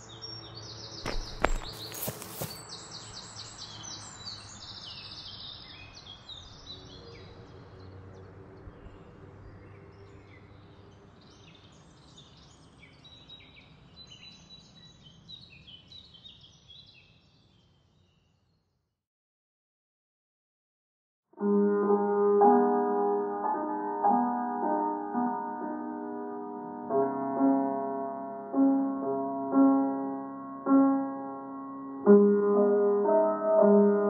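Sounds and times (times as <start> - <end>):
small birds chirping and trilling: 0.0 - 18.6.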